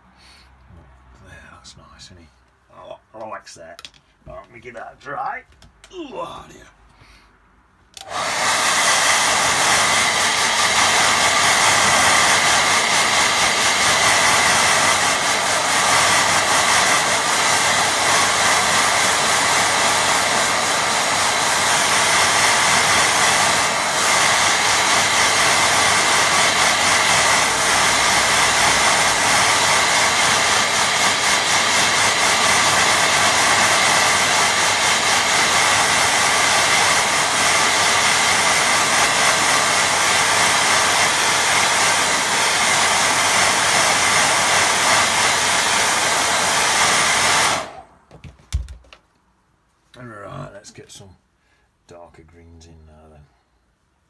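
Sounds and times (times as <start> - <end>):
hair dryer blowing: 8.0 - 48.7.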